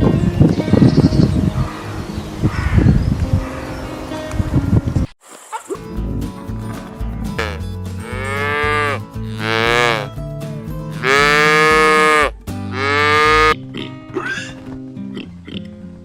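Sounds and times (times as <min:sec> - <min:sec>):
cow mooing: 0:07.4 - 0:10.1, 0:10.9 - 0:13.6.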